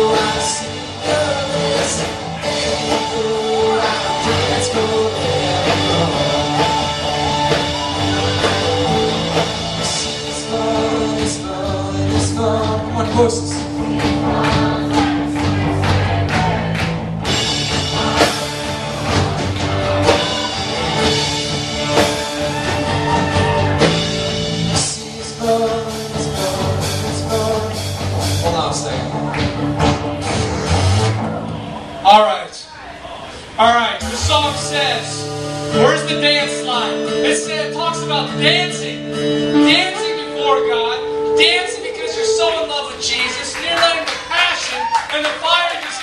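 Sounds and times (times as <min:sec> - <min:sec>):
person singing: 0:00.0 - 0:15.6, 0:24.7 - 0:28.0
drums: 0:00.0 - 0:32.0, 0:32.9 - 0:40.4
rock band playing: 0:00.0 - 0:32.0, 0:33.4 - 0:45.7.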